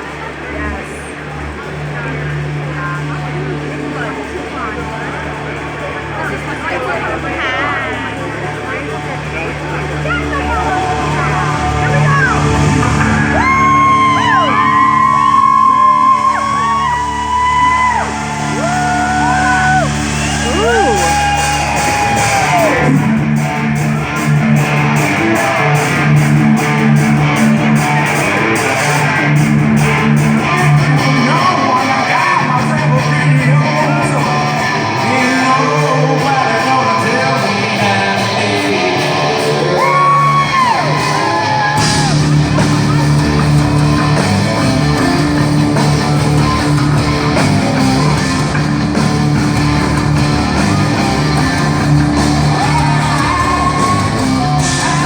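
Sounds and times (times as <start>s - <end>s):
hard rock band playing: 0.0s - 55.0s
singer wailing and shouting: 30.4s - 45.3s, 51.3s - 55.0s.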